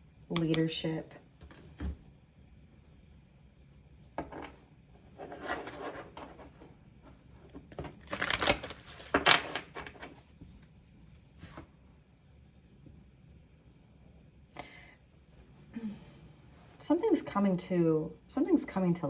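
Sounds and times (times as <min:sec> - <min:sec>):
cards being shuffled: 0:07.8 - 0:10.2.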